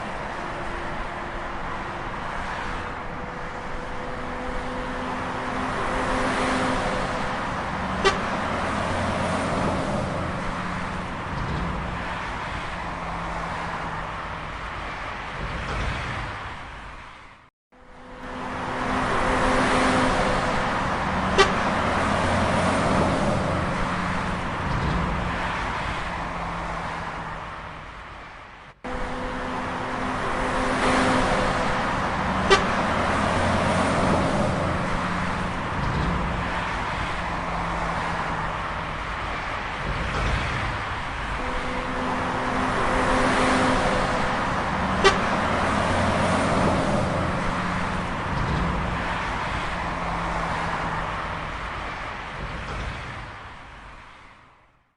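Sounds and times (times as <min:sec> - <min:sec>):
horn toots: 0:03.9 - 0:09.7, 0:17.8 - 0:22.8, 0:28.9 - 0:35.2, 0:41.3 - 0:47.8.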